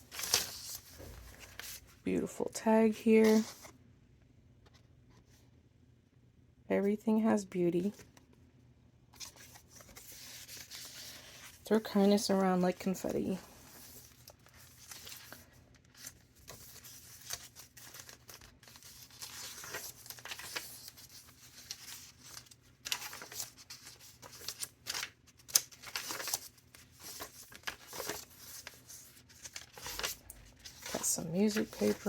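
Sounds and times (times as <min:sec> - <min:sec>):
paper pages turning: 0:00.0 - 0:02.0, 0:03.2 - 0:03.7, 0:09.2 - 0:12.9, 0:13.6 - 0:32.0.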